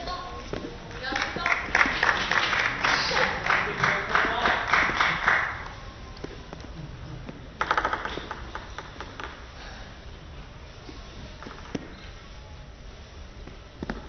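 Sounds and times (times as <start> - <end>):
crowd clapping: 0.9 - 5.7.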